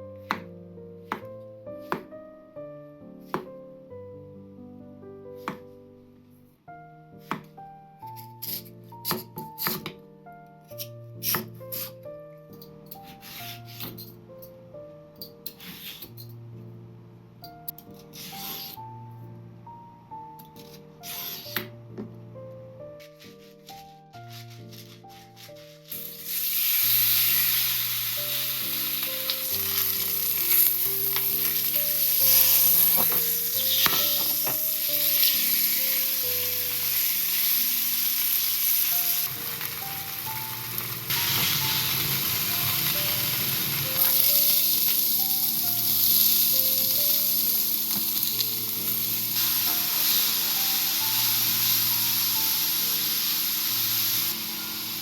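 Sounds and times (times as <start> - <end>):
soft background music: 0.0 - 55.0
food sizzling in a pan: 24.3 - 55.0.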